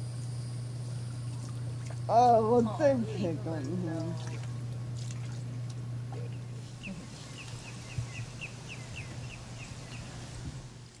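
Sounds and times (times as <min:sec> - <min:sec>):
steady low hum: 0:00.0 - 0:11.0
bird chirping: 0:06.3 - 0:10.4.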